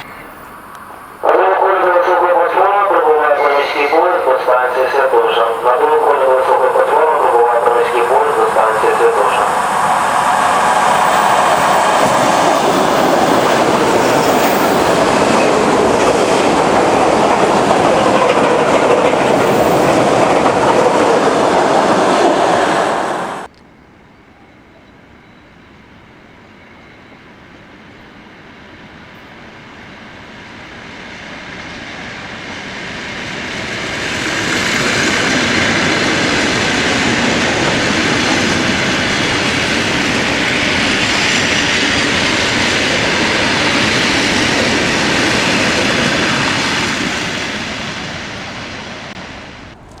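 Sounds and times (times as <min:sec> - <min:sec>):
train wheels clattering over rails: 0:09.7 - 0:23.5.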